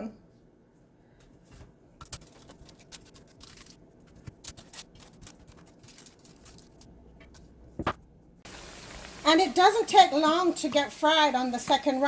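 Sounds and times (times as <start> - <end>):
oil crackling and popping: 2.0 - 10.0.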